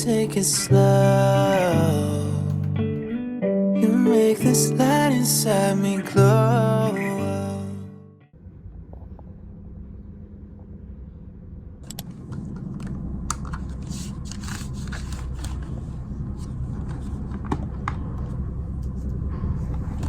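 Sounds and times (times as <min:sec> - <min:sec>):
low background rumble: 0:08.4 - 0:20.0
rustling: 0:13.6 - 0:17.4.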